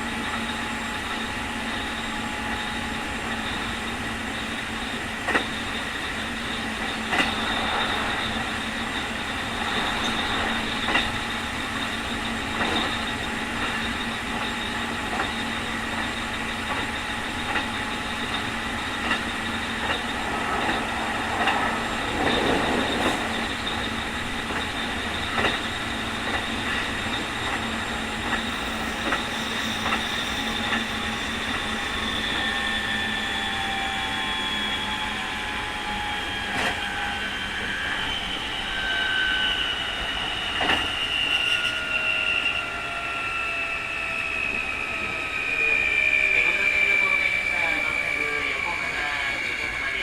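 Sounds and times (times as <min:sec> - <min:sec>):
train running noise: 0:00.0 - 0:50.0
electric train motor whining: 0:00.1 - 0:50.0
rail-joint clicks: 0:05.2 - 0:32.5, 0:40.6 - 0:41.7.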